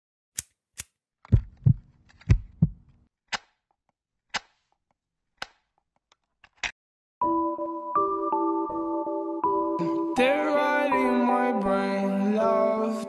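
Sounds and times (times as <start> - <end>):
heartbeat thumps: 1.3 - 2.9.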